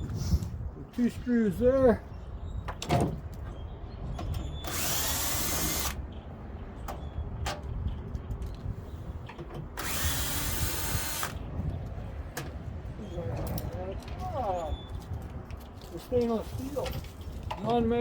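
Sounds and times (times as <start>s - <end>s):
power drill backing out screws: 4.4s - 6.0s, 9.8s - 11.4s.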